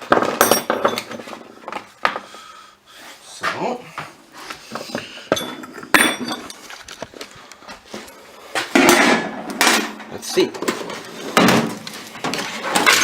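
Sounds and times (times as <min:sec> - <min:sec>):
metal tools clinking and clattering: 0:00.1 - 0:01.3, 0:04.8 - 0:07.0, 0:12.2 - 0:13.0.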